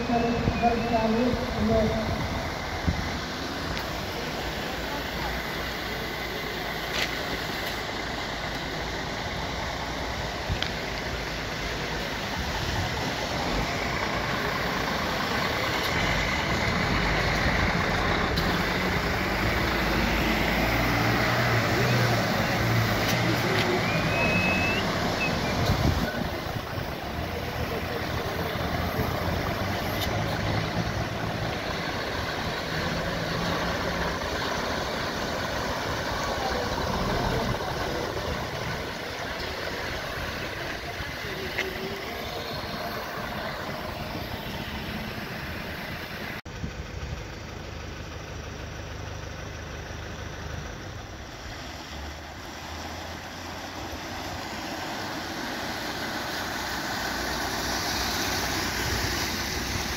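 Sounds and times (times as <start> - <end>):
vehicle engines humming: 0.0 - 59.9.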